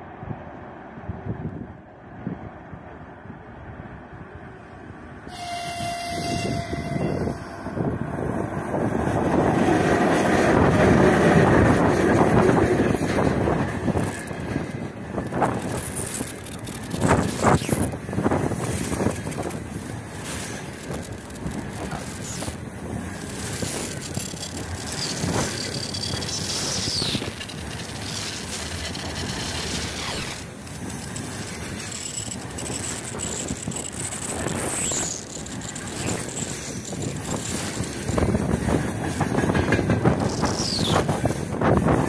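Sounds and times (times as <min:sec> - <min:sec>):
train passing at speed: 0:00.0 - 0:42.0
wheels clacking over rail joints: 0:02.3 - 0:42.0
locomotive horn blast: 0:05.2 - 0:07.6.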